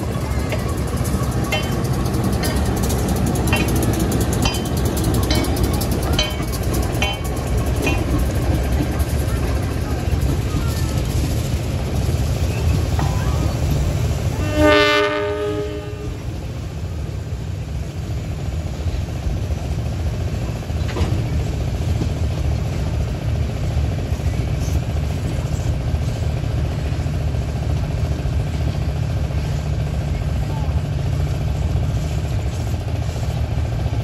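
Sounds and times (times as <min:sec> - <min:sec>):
freight train rumbling past: 0:00.0 - 0:34.0
locomotive air horn blast: 0:14.3 - 0:16.3.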